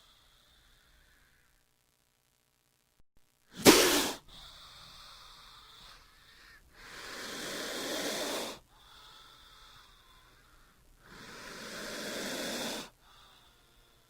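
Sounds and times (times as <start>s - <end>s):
snake hissing: 3.6s - 5.6s, 6.8s - 8.6s, 11.0s - 13.6s.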